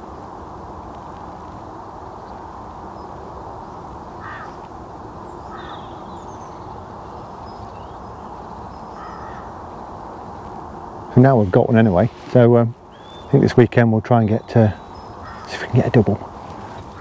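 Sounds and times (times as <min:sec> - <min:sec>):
wind: 0:00.0 - 0:17.0
harsh bird calls: 0:02.9 - 0:10.4, 0:11.0 - 0:17.0
faint high bird chirps: 0:05.3 - 0:09.5, 0:12.9 - 0:13.4.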